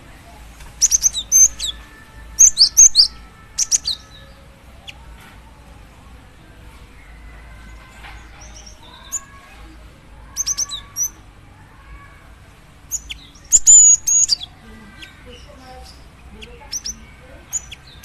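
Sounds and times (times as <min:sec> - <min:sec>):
faint whistling of birds: 0:00.0 - 0:18.0.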